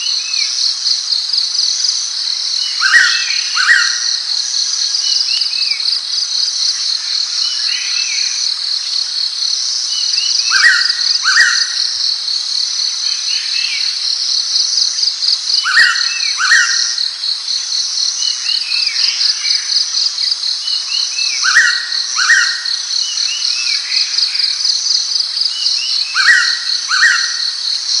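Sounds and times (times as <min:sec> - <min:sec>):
insects chorus pulsing: 0:00.0 - 0:28.0.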